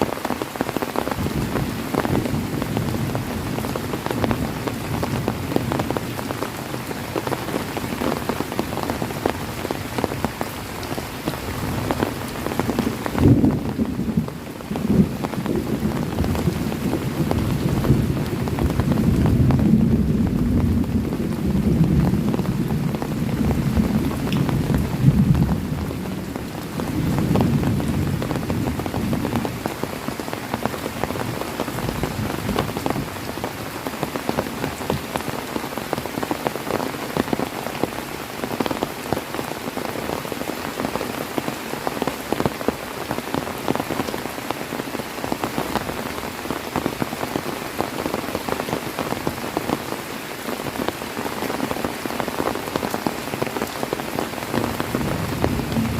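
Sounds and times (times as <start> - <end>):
heavy rain falling: 0.0 - 55.9
low rumble of thunder: 12.8 - 29.7, 54.6 - 55.9.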